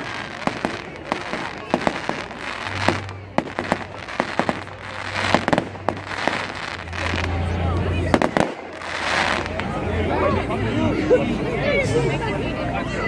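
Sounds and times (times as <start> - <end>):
fireworks bangs and crackles: 0.0 - 9.9.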